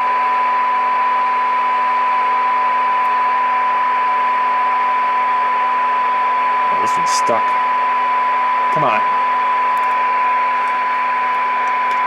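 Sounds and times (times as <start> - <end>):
radio test tone: 6.6 - 7.6, 8.7 - 9.3
radio speaker hiss: 6.7 - 7.6, 8.8 - 9.2.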